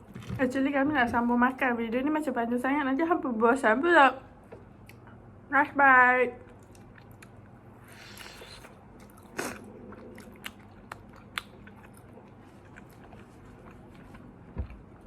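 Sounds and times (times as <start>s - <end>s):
person chewing food: 6.5s - 15.0s.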